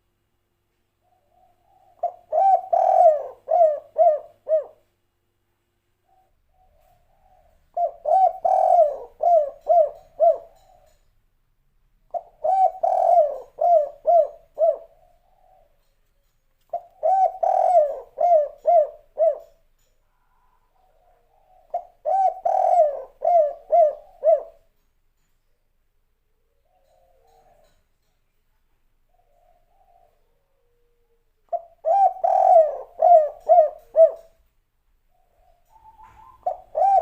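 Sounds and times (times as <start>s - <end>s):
dove cooing: 1.0s - 4.9s, 6.0s - 11.0s, 12.1s - 15.9s, 16.7s - 24.7s, 26.4s - 27.8s, 29.1s - 34.4s, 35.1s - 37.0s.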